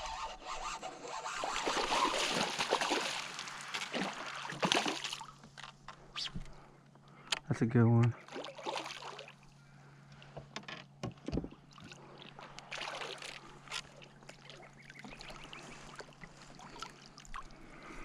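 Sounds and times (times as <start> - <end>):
faint steady hum: 1.3 - 18.0
water splashing: 1.4 - 5.4, 8.2 - 9.4, 11.7 - 17.5
knocks and clatter in a kayak: 10.3 - 11.7.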